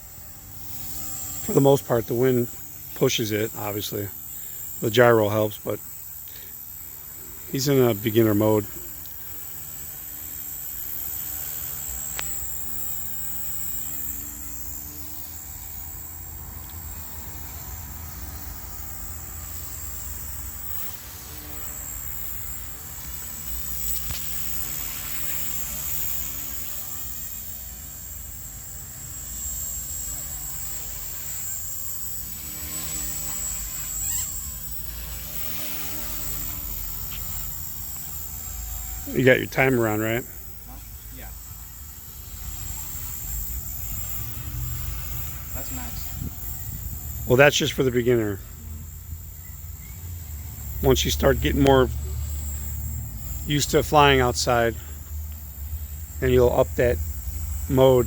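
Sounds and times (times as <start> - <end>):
rc helicopter whine: 0.0 - 58.0
wind rumbling on microphone: 45.9 - 47.3.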